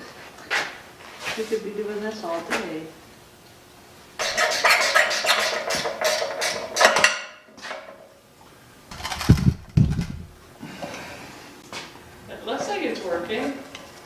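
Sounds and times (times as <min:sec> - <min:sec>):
deep thumps: 0:08.9 - 0:10.4.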